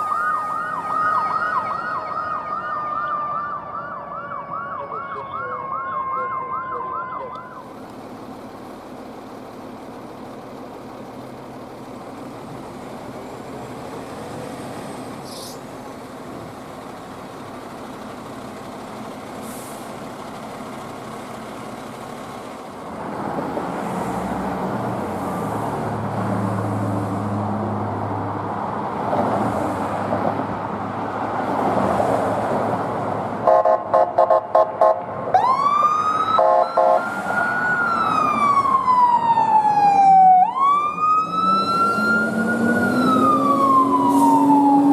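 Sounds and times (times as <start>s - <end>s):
siren wailing: 0.0s - 7.8s, 34.5s - 44.9s
heavy truck engine: 0.0s - 44.9s
road traffic: 0.0s - 44.9s
fire engine air horn blasts: 33.4s - 35.1s, 36.4s - 37.1s.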